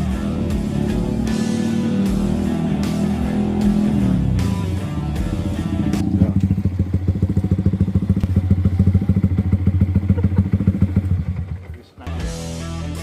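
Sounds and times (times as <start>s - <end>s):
background music: 0.0s - 9.0s, 12.0s - 13.0s
motorcycle engine idling: 0.0s - 12.1s.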